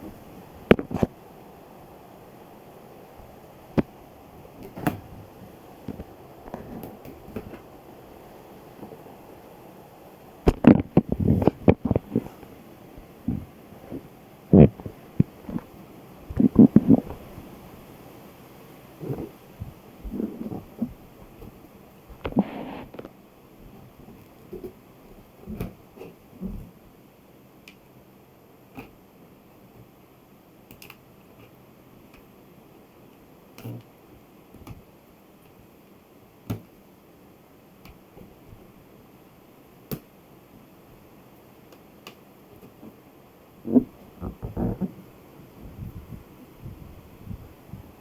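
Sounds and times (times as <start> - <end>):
balloon rubber squeaks and thumps: 43.6 - 46.8.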